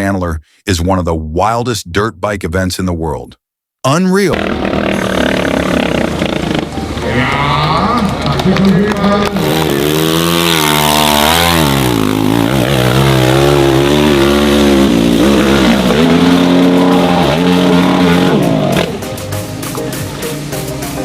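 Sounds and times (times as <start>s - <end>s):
dirt bike engine revving: 4.3s - 19.2s.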